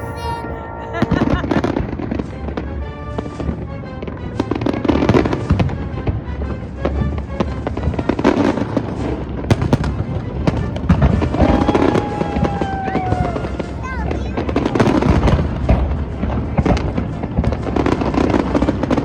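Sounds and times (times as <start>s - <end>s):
long steady tone: 0.0s - 2.4s
music playing: 0.0s - 5.6s
fireworks bangs and crackles: 2.5s - 19.0s.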